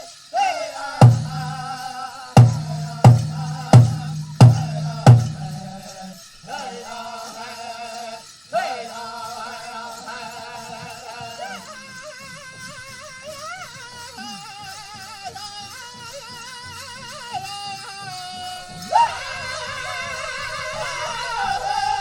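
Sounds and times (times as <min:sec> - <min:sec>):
high sung voices: 0:01.0 - 0:01.8
large drum struck hard: 0:01.0 - 0:01.8, 0:02.4 - 0:05.8.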